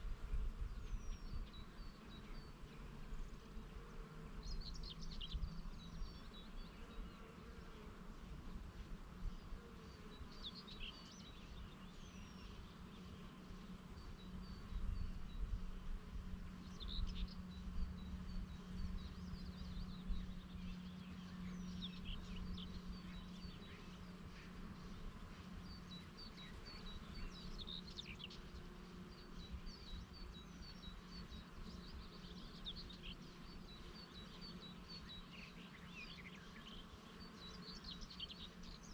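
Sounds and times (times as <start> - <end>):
wind rumble on microphone: 0.0 - 1.8, 14.5 - 23.2
bees buzzing: 0.0 - 38.9
small birds chirping: 0.1 - 38.9.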